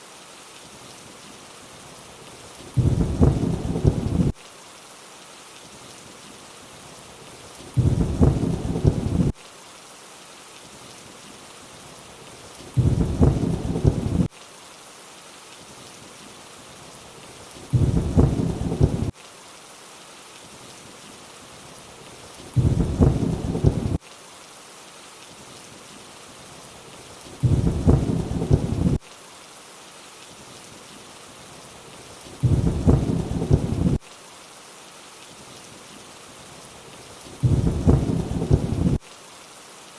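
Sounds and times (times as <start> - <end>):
steady rain hiss: 0.0 - 39.9
low thunder rumble: 2.8 - 4.3, 7.8 - 9.3, 12.8 - 14.3, 17.7 - 19.1, 22.6 - 24.0, 27.4 - 29.0, 32.4 - 34.0, 37.4 - 39.0.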